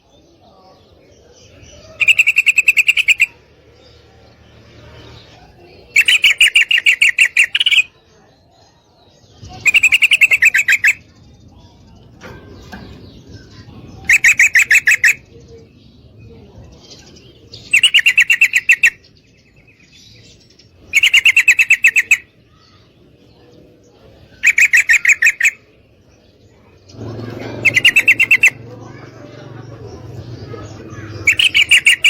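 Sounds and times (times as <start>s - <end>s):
bird calling sharp repeated notes: 2.0s - 3.4s, 5.9s - 7.9s, 9.6s - 11.1s, 14.0s - 15.2s, 17.7s - 19.0s, 20.9s - 22.3s, 24.4s - 25.7s, 27.6s - 28.6s, 31.2s - 32.0s.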